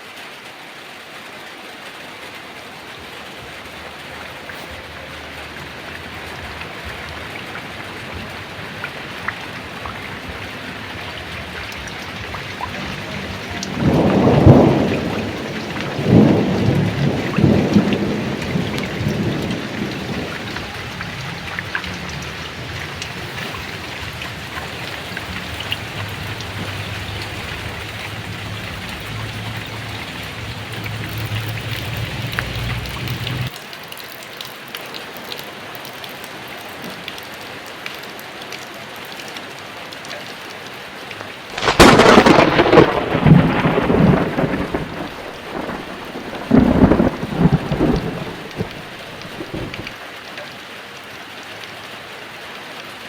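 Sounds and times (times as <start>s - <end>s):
heavy rain falling: 0.0s - 53.0s
thunder rumbling: 2.8s - 33.5s, 41.5s - 50.0s.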